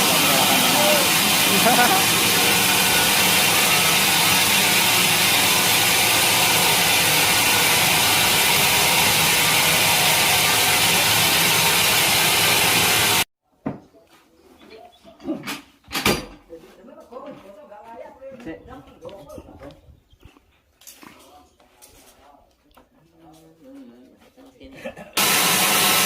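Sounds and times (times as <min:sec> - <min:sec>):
sawmill saw machinery hissing: 0:00.0 - 0:13.3, 0:25.2 - 0:26.0.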